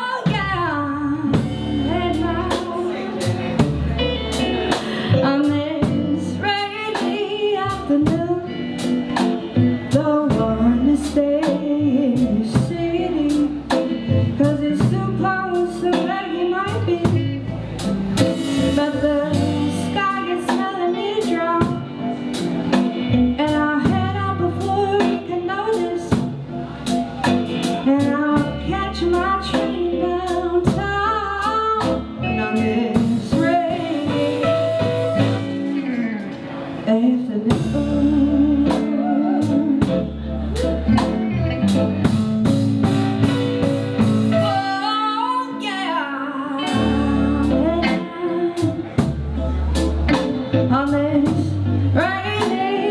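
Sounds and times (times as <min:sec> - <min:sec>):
woman singing lead: 0:00.0 - 0:26.4, 0:27.2 - 0:42.0, 0:44.0 - 0:52.9
drum kit: 0:00.0 - 0:45.9, 0:46.6 - 0:52.9
bass guitar: 0:00.0 - 0:52.9
electric guitars: 0:00.3 - 0:52.9.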